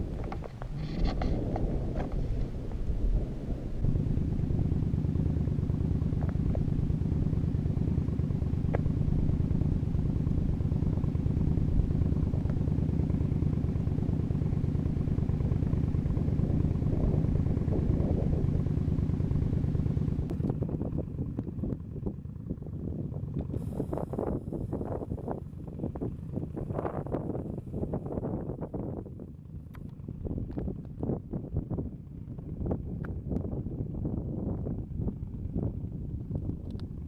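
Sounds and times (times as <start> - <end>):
wind rushing past microphone: 0.0 - 6.9, 15.4 - 37.0
motorcycle engine cruising: 0.0 - 37.0.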